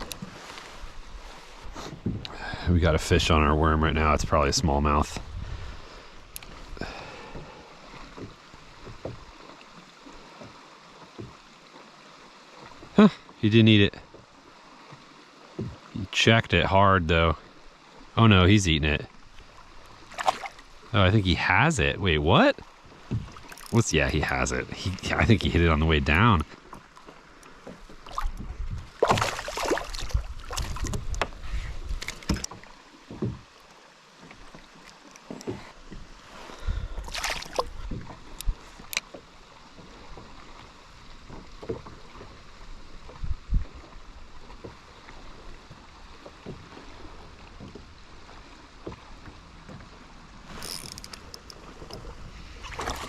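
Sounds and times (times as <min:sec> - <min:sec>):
water splashing around kayak: 0:00.0 - 0:53.0
fish splashing: 0:20.0 - 0:20.8, 0:27.9 - 0:31.0, 0:37.0 - 0:37.8, 0:52.6 - 0:53.0.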